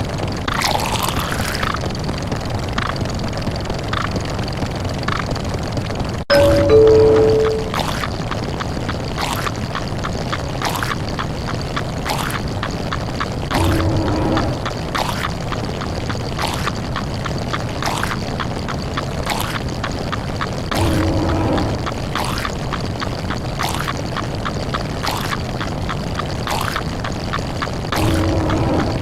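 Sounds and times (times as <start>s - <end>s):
low doorbell-like tone: 6.3s - 7.8s
pouring water hiss: 13.4s - 15.4s.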